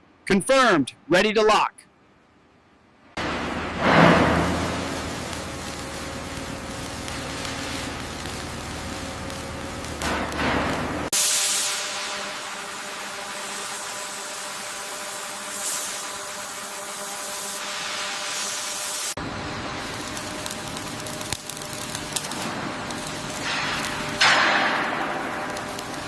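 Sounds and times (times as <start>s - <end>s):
faint hum tones: 1.9s - 26.0s
rumbling work noise: 3.2s - 13.9s, 19.2s - 26.0s
bright spraying hiss: 3.2s - 26.0s.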